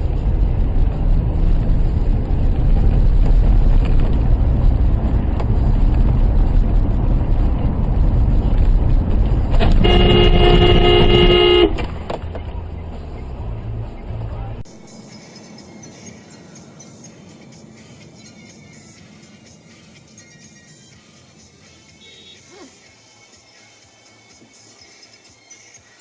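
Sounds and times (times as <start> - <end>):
vehicle and road rumble: 0.0 - 20.2
car horn: 9.5 - 12.0, 22.0 - 22.5.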